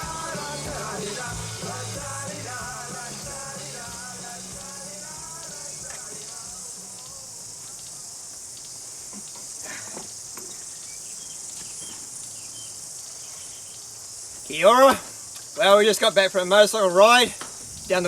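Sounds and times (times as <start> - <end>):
music track: 0.0 - 7.0
insects chirping chorus: 0.0 - 18.0.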